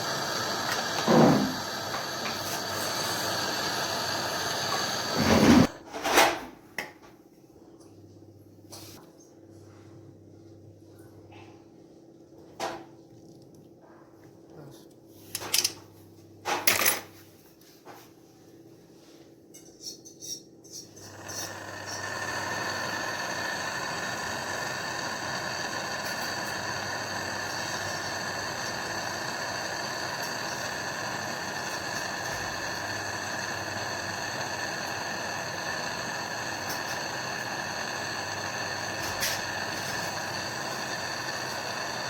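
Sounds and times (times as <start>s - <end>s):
machine humming and whining: 21.1s - 42.0s.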